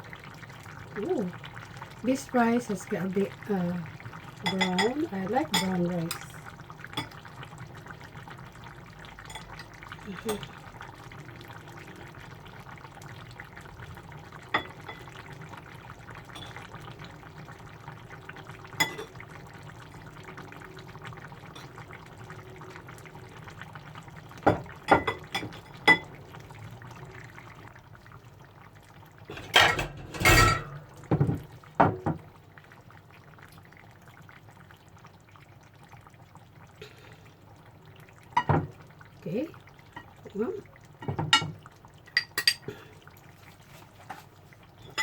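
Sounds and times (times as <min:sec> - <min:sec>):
dishes and utensils clinking: 0:29.3 - 0:31.3, 0:42.1 - 0:42.7.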